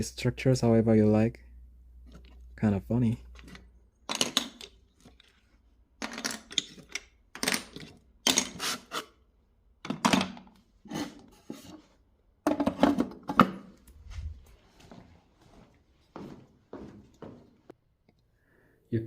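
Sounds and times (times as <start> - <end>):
toy pieces clattering: 3.4 - 5.4, 6.0 - 8.6.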